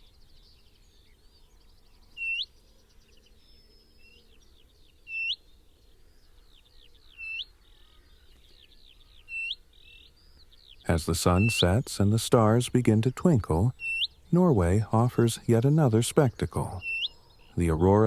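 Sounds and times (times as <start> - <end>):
birds chirping and trilling: 0.0 - 18.0
bird giving sharply hooked call: 13.7 - 14.2, 16.7 - 17.1.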